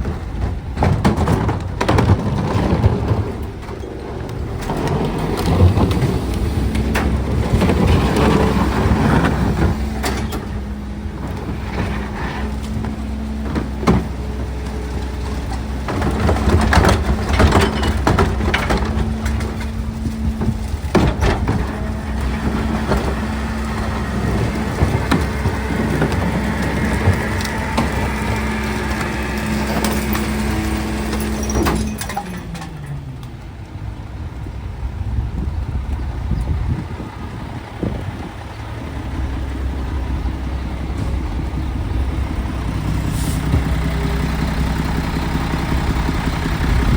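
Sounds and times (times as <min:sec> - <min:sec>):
garbage truck engine humming: 0:00.0 - 0:46.9
trash and metal clanking: 0:00.0 - 0:46.9.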